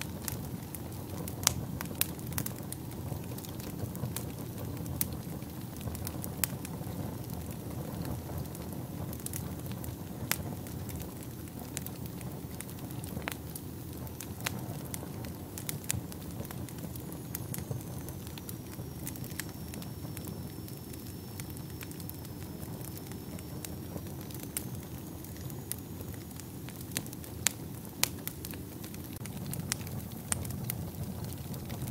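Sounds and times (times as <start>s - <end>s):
flames rumbling in fireplace: 0.0s - 31.9s
logs crackling and popping: 0.0s - 31.9s
faint high whistle: 17.2s - 26.3s.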